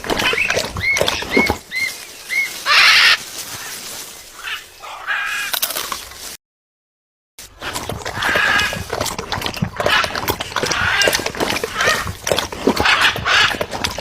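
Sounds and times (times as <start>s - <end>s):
macaw squawking: 0.1s - 3.8s.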